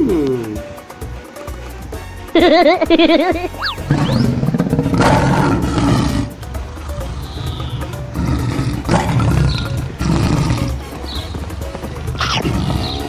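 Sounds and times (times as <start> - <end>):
background music: 0.0 - 13.0
cartoon lion roaring: 3.6 - 13.0.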